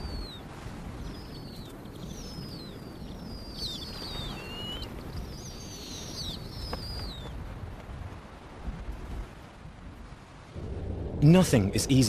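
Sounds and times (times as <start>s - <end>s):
small birds chirping and whistling: 0.0s - 7.4s
low rumble of wind: 0.0s - 12.0s.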